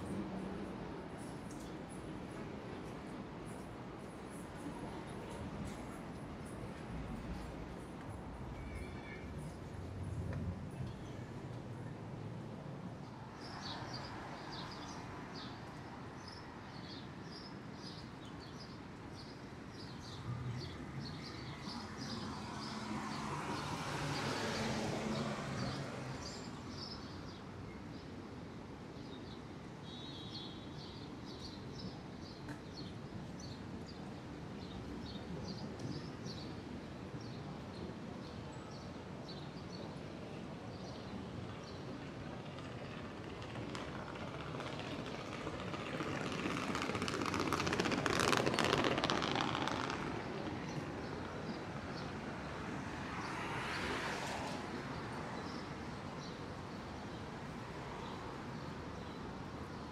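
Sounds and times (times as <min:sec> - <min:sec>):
city street hum: 0:00.0 - 0:59.9
passing traffic: 0:19.4 - 0:27.3, 0:39.9 - 0:59.9.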